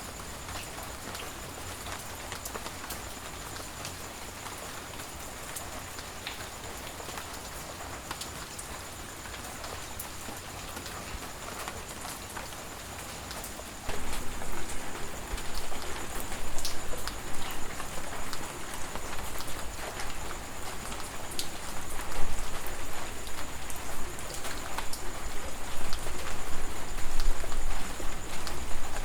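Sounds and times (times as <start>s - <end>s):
steady rain falling: 0.0s - 29.0s
raindrops ticking: 13.3s - 29.0s.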